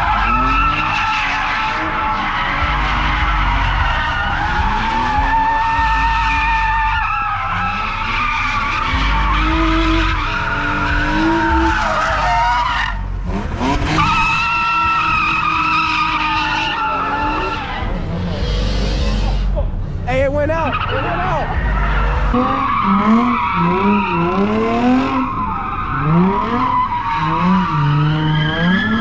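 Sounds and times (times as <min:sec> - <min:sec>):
car engine running hard: 0:00.0 - 0:29.0
car tyres squealing: 0:00.0 - 0:29.0.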